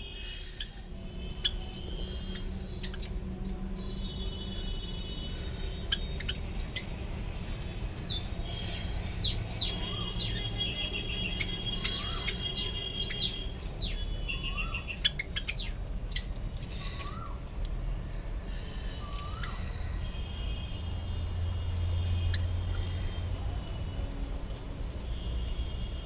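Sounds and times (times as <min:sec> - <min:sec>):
small birds chirping: 0:01.4 - 0:03.2, 0:05.7 - 0:17.4, 0:19.0 - 0:20.0.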